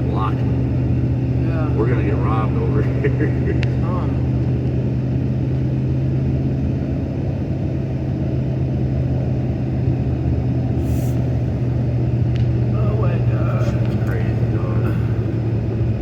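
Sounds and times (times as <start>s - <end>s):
car engine and tyre rumble: 0.0s - 16.0s
short hiss: 10.8s - 11.4s.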